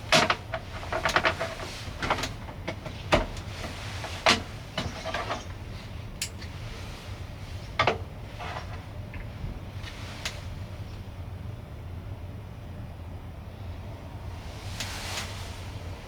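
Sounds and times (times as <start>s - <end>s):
clatter of things being handled: 0.0s - 6.5s, 7.5s - 10.5s.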